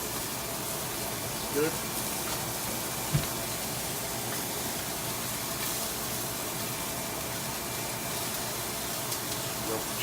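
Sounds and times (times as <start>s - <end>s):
chicken sizzling in a frying pan: 0.0s - 10.0s
sharp knock: 3.1s - 3.4s.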